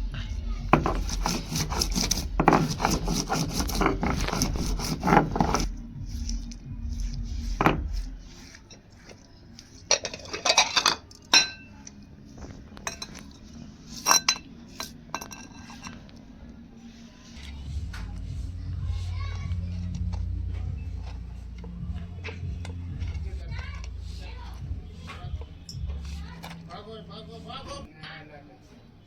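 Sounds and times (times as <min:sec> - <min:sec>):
metal utensils clattering and scraping: 0:00.7 - 0:05.7, 0:09.7 - 0:11.7, 0:12.8 - 0:16.1
clinks of cookware: 0:10.0 - 0:11.7.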